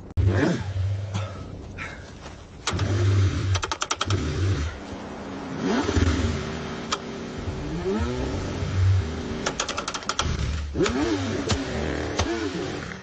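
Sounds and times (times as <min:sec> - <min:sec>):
rattling clicks: 0:02.6 - 0:04.3, 0:09.4 - 0:11.6
car engine cranking: 0:02.6 - 0:05.0, 0:05.6 - 0:13.0.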